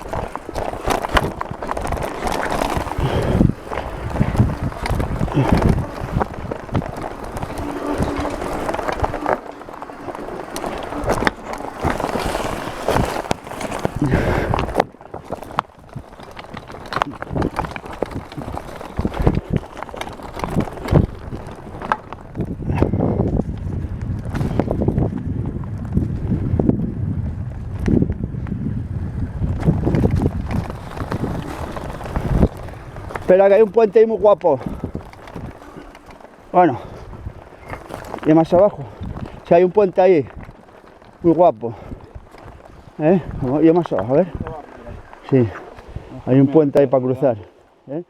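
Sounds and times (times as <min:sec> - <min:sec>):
steady rushing noise: 0:00.0 - 0:15.2
wind buffeting microphone: 0:00.0 - 0:47.9.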